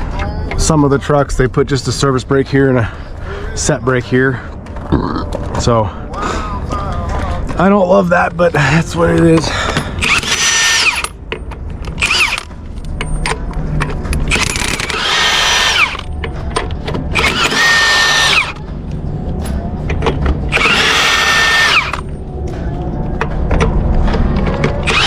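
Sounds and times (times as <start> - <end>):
power tool whining: 10.0 - 11.2, 12.0 - 12.5, 14.3 - 16.1, 17.1 - 18.6, 20.5 - 22.1, 24.8 - 25.0.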